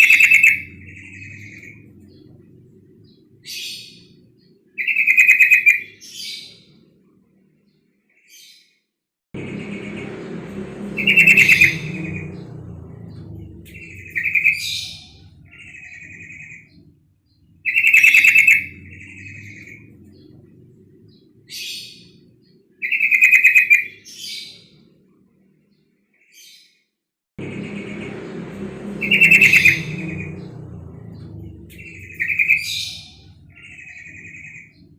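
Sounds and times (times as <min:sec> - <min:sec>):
low background rumble: 0:00.0 - 0:04.8, 0:09.4 - 0:22.8, 0:27.4 - 0:34.9
soft bird chirps: 0:09.6 - 0:23.9.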